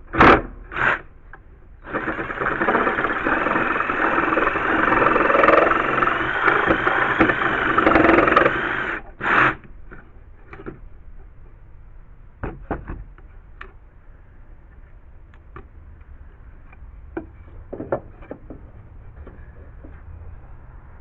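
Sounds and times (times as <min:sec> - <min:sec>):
power tool running: 0:01.8 - 0:09.6
knocks and clicks of wood and tools: 0:01.9 - 0:08.8, 0:09.6 - 0:10.9, 0:12.4 - 0:13.8, 0:16.6 - 0:20.1.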